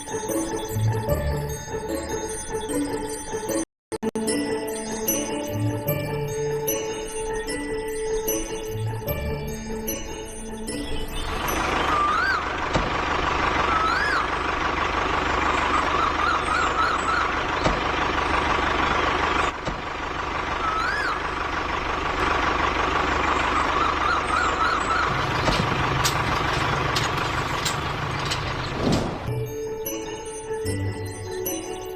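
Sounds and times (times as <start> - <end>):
truck engine running: 11.6 - 29.4.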